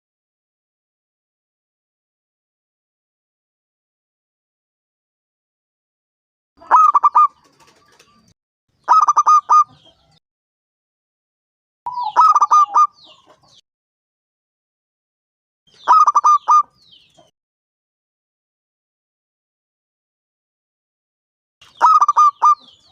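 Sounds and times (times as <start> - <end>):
dove cooing: 6.6 - 8.1, 8.9 - 10.0, 11.9 - 13.3, 15.9 - 16.7, 21.8 - 22.8.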